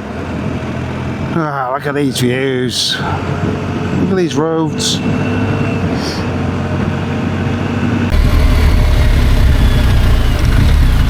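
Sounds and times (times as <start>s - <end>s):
motorcycle engine running: 6.4s - 11.0s.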